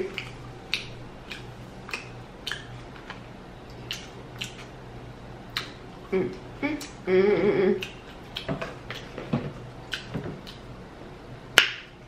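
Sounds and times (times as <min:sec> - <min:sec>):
faint low hum: 0:00.0 - 0:12.0
wet chewing clicks and smacks: 0:00.1 - 0:04.8, 0:05.5 - 0:05.8, 0:07.8 - 0:09.2, 0:09.9 - 0:10.7.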